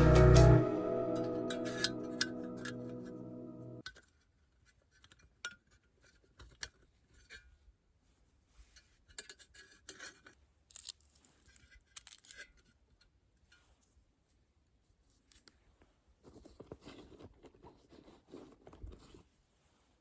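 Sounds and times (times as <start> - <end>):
small objects rustling: 10.7 - 12.4.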